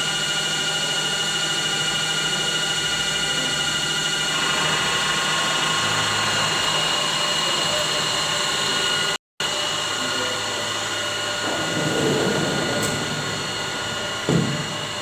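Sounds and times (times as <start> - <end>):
machine whirring and whining: 0.0 - 15.0
short thump: 11.5 - 15.0.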